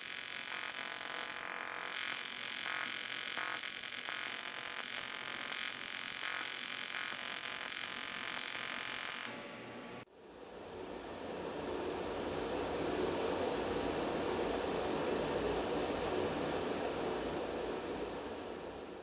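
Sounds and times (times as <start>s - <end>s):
welding arc buzzing: 0.0s - 10.0s.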